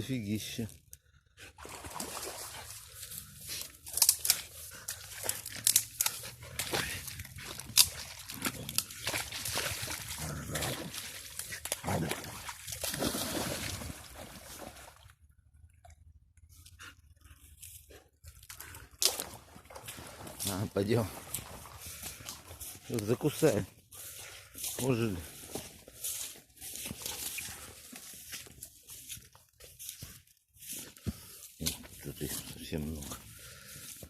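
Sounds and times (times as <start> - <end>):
splashing in shallow water: 1.6 - 15.2, 18.5 - 23.5.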